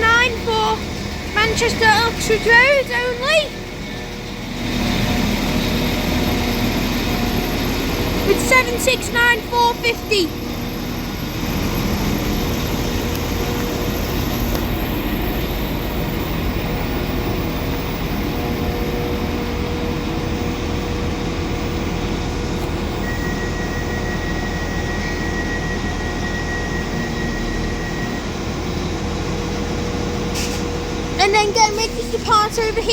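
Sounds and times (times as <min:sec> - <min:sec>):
steady high whine: 0:00.0 - 0:32.9
train engines running: 0:00.0 - 0:32.9.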